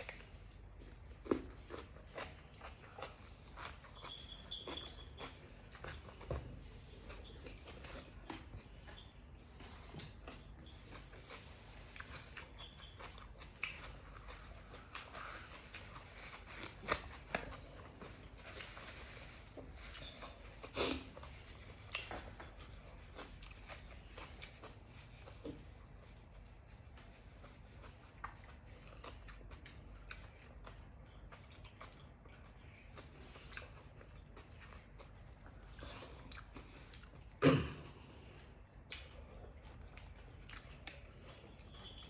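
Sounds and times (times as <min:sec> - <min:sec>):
chewing and crunching food: 0:00.0 - 0:37.4, 0:38.0 - 0:42.0.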